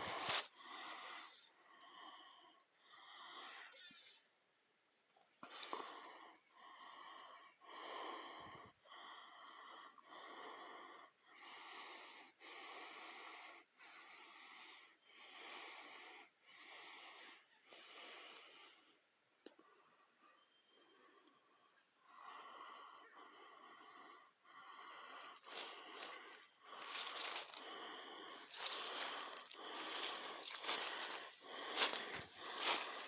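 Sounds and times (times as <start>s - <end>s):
person breathing heavily: 0.0s - 3.6s, 22.1s - 33.0s.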